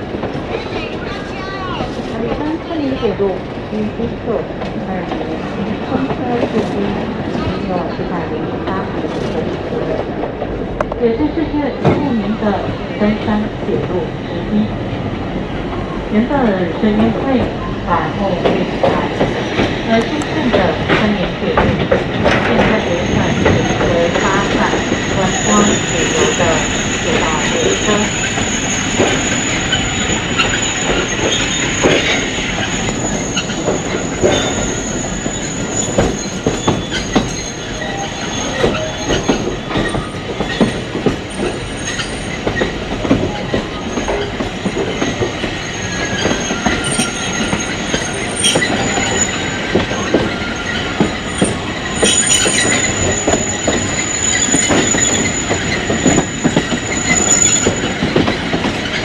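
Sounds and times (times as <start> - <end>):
train rumbling on track: 0.0 - 59.0
high wheel squeal: 22.9 - 59.0.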